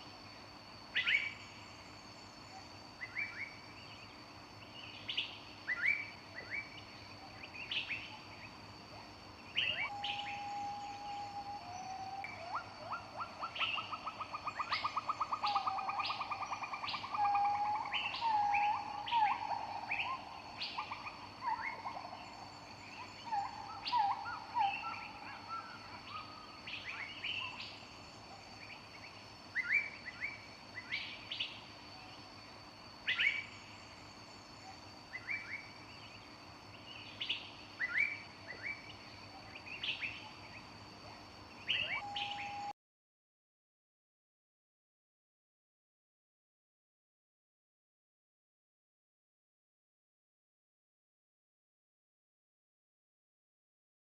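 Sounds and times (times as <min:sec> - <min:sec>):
whistled bird notes: 0:09.5 - 0:21.9, 0:41.6 - 0:42.7
bird trill: 0:09.5 - 0:22.3, 0:41.6 - 0:42.7
birds chirping: 0:41.6 - 0:42.7.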